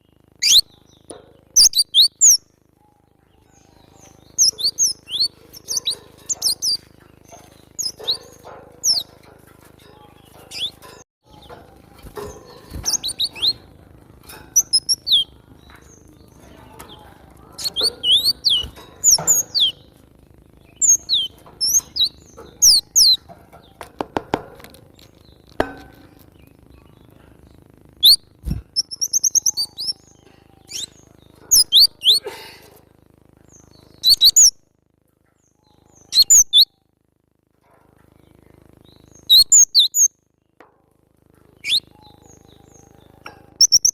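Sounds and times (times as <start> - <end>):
bird trill: 0.0 - 23.9, 25.0 - 32.4, 33.4 - 34.6, 35.4 - 37.0, 38.0 - 40.6, 41.5 - 43.9
bird chirping: 0.0 - 32.2, 33.4 - 34.6, 35.3 - 36.9, 38.0 - 40.6, 41.4 - 43.9.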